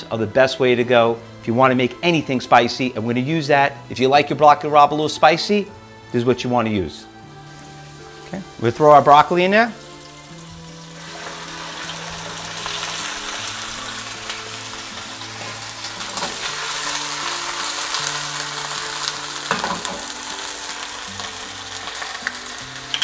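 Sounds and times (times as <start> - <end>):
soft background music: 0.0 - 23.0
vegetables sizzling in oil: 7.0 - 23.0.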